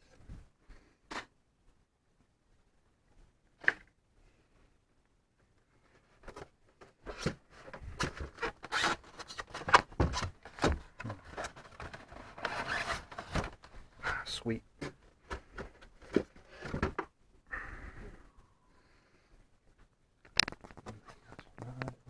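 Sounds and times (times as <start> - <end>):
packaging rustling and crinkling: 7.2 - 14.0.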